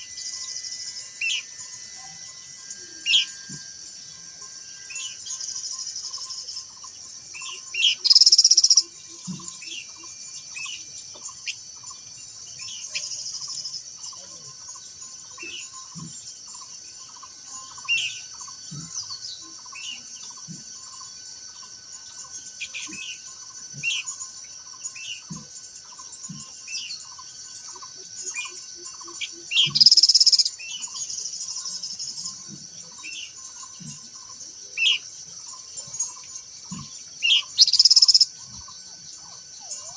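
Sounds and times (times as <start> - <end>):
bird song bursts: 0.0 - 13.8, 24.8 - 39.9
insects buzzing: 0.0 - 39.9
pulsing chirp: 0.0 - 39.9.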